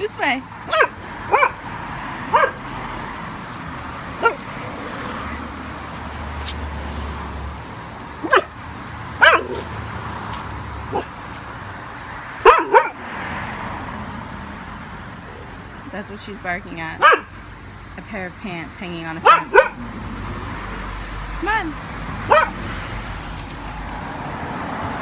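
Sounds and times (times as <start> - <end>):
dog barking: 0.6 - 1.7, 2.3 - 2.7, 4.1 - 5.4, 8.2 - 8.6, 9.2 - 9.8, 10.9 - 11.2, 12.4 - 13.1, 17.0 - 17.3, 19.2 - 19.8, 22.2 - 22.8.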